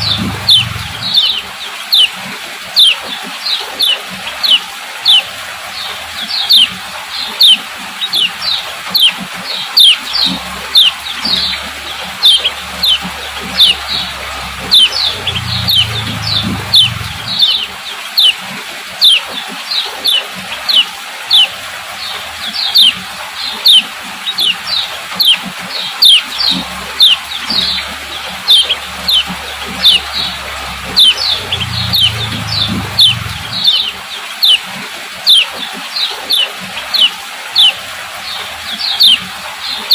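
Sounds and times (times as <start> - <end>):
faint low hum: 10.2 - 17.8, 26.5 - 34.0.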